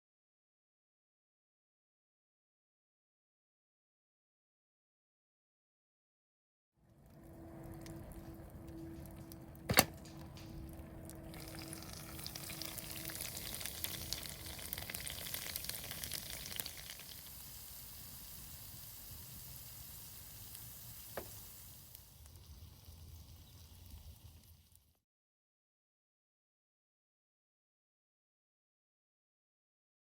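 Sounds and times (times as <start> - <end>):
food sizzling in a pan: 11.3 - 25.0.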